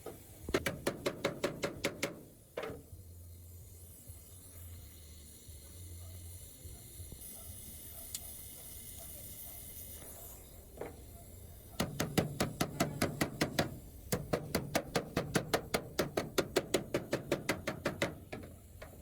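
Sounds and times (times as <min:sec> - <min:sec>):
rapid sharp tapping: 0:00.5 - 0:02.3, 0:11.8 - 0:19.0.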